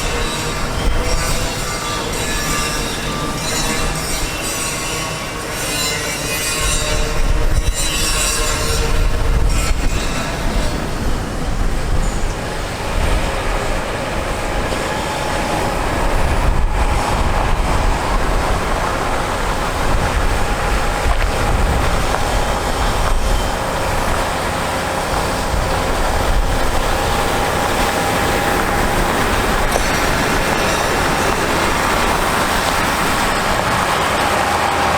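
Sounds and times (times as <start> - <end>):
heavy truck diesel engine running: 9.2 - 34.9.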